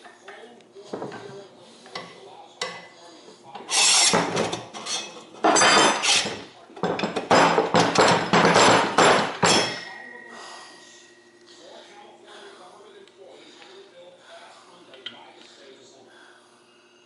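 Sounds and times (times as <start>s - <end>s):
metal parts scraping and clanking: 3.6s - 6.4s.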